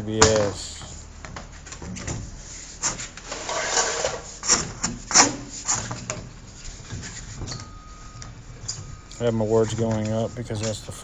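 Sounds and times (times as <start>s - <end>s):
plastic pipe rubbing and scraping: 1.4s - 8.0s.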